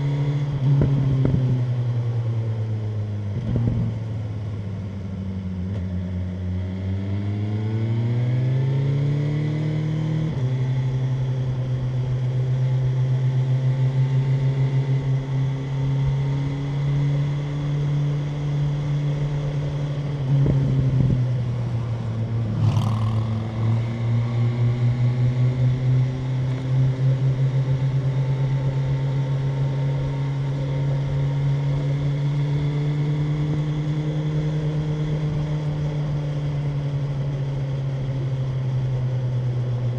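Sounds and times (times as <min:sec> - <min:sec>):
motorcycle engine revving: 0:20.0 - 0:28.6.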